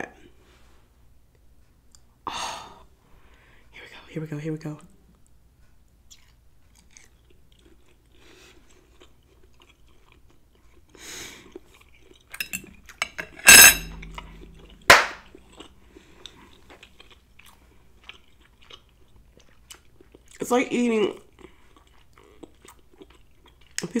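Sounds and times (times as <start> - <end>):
close chewing: 6.1 - 13.0, 14.4 - 20.5, 21.1 - 24.0
knife scraping ceramic plate: 12.4 - 15.0
cutlery clink: 12.4 - 15.2.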